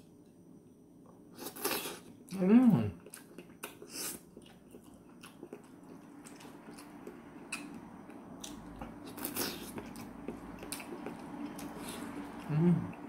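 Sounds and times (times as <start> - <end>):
faint steady hum: 0.0 - 13.0
chewing mouth sounds: 3.0 - 7.8, 8.4 - 13.0.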